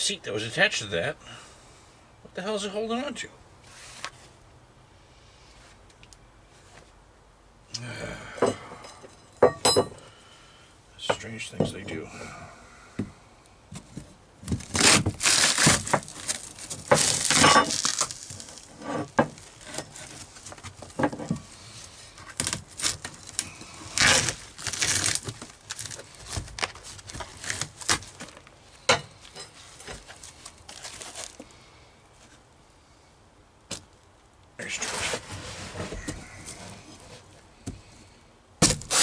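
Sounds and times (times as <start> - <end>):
foam and plywood tearing: 14.4 - 28.5, 38.6 - 39.0.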